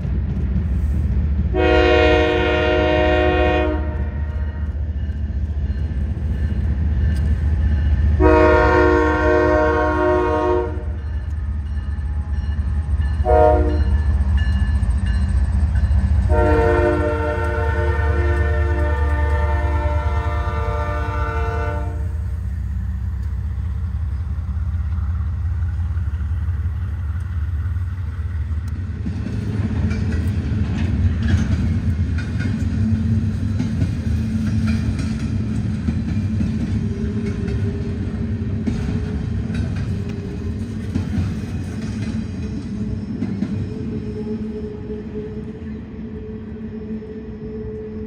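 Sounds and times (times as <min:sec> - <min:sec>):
rolling clatter of rail cars: 0:00.0 - 0:46.8
low rumble of passing train: 0:00.0 - 0:48.0
locomotive horn chord: 0:01.5 - 0:04.7, 0:08.2 - 0:11.0, 0:13.2 - 0:13.9, 0:16.3 - 0:22.3.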